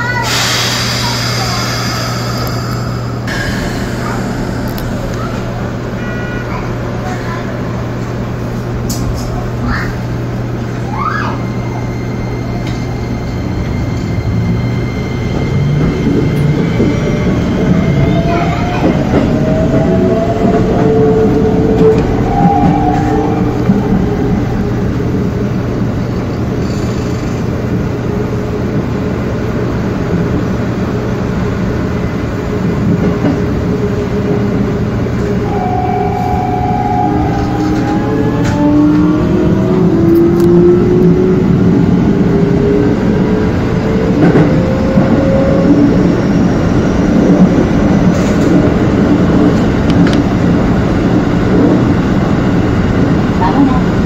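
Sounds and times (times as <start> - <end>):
train running hum: 0.0 - 54.0
train motors whining: 0.1 - 6.0.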